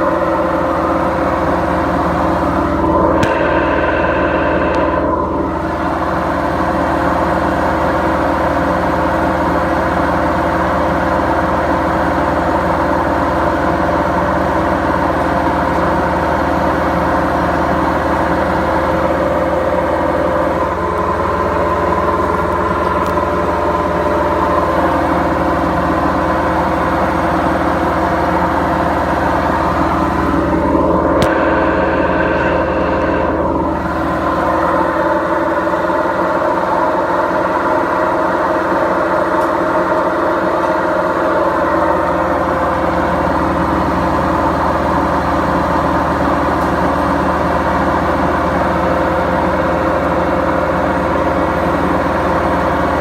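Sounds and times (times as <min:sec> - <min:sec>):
washing machine drum droning: 0:00.0 - 0:53.0.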